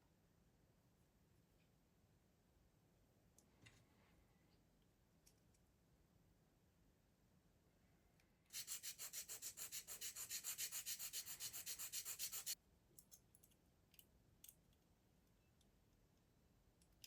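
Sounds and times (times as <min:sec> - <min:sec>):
sanding plastic part: 0:08.5 - 0:12.6.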